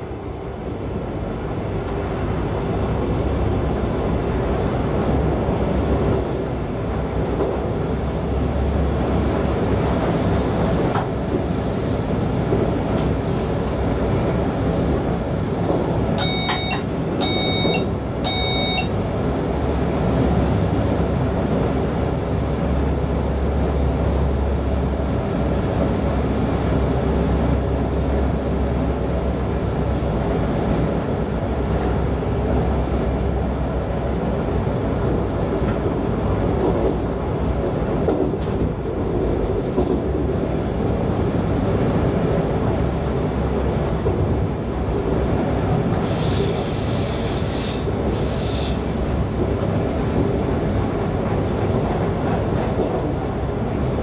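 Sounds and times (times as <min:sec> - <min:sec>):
train wheels and drive rumbling: 0:00.0 - 0:54.0
short electronic beeps: 0:16.2 - 0:18.9.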